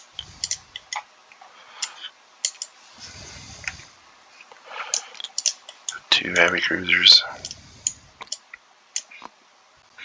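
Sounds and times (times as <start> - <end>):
light clicks and ticks: 0.0 - 2.7.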